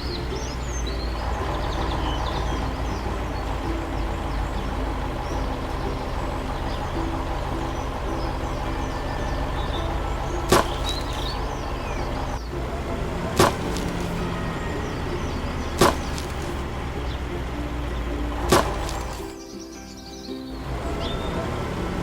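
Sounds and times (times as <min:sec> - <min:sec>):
tractor engine running: 0:00.0 - 0:19.4, 0:20.5 - 0:22.0
faint bird chirps: 0:00.0 - 0:22.0.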